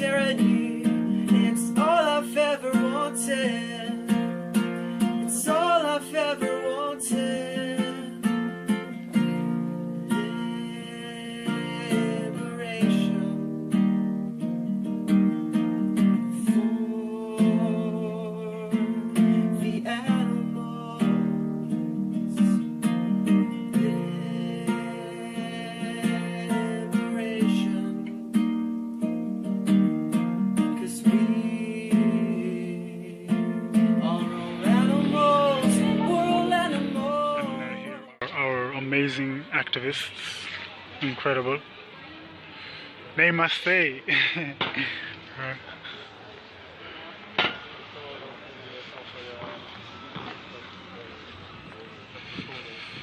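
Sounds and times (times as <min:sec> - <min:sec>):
person singing: 0:00.0 - 0:14.0, 0:15.0 - 0:28.5, 0:30.5 - 0:38.2
acoustic guitar strumming chords: 0:00.0 - 0:38.5.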